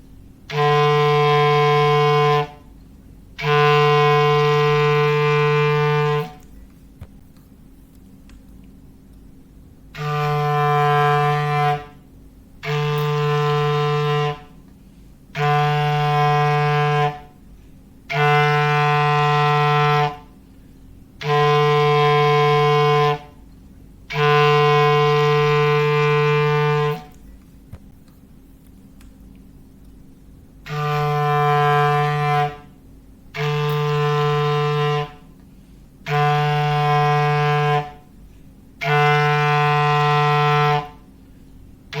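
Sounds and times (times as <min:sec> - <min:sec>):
clarinet long low notes: 0:00.4 - 0:02.7, 0:03.4 - 0:06.5, 0:09.9 - 0:14.6, 0:15.3 - 0:17.4, 0:18.1 - 0:20.4, 0:21.2 - 0:23.4, 0:24.1 - 0:27.2, 0:30.6 - 0:35.4, 0:36.0 - 0:38.1, 0:38.8 - 0:41.1.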